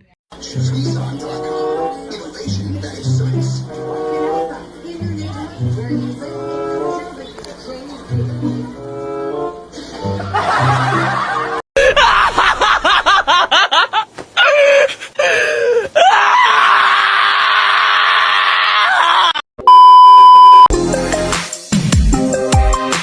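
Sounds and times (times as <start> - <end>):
wavering screaming cries: 14.4 - 19.4
loud steady beep: 19.7 - 20.7
music with a beat: 20.7 - 23.0.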